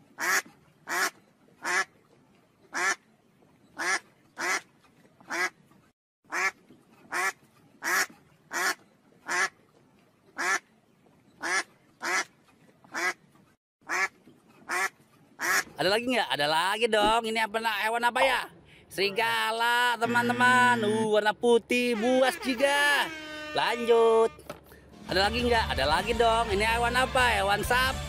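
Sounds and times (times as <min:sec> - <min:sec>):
ducks quacking: 0:00.2 - 0:01.9, 0:02.7 - 0:03.0, 0:03.8 - 0:05.6, 0:06.3 - 0:09.6, 0:10.4 - 0:10.6, 0:11.4 - 0:13.2, 0:13.8 - 0:15.9.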